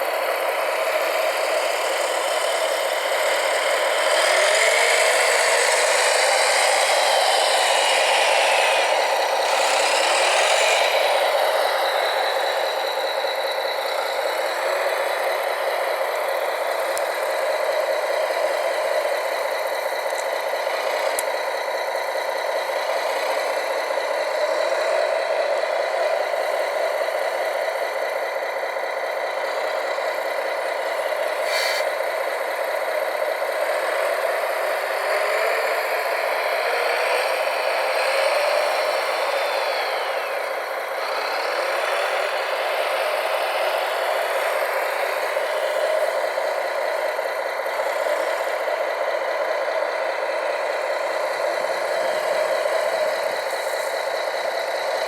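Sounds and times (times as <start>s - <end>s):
model trucks motors whirring: 0.0s - 55.0s.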